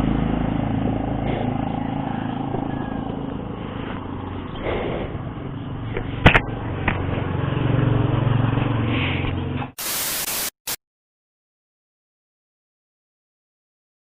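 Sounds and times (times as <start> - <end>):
motorcycle engine idling: 0.0 - 9.7
burst of hiss: 9.8 - 10.8.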